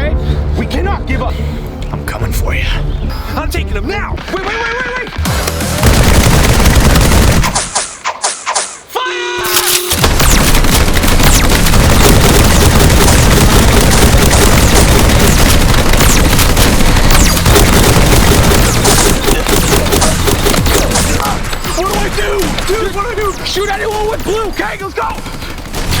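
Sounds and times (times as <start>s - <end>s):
rapid gunfire: 5.2s - 8.7s, 9.9s - 26.0s.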